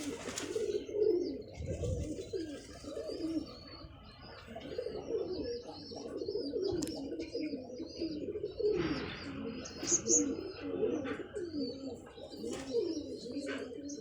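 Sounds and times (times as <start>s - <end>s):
pigeons cooing: 0.0s - 14.0s
small birds chirping: 0.0s - 14.0s.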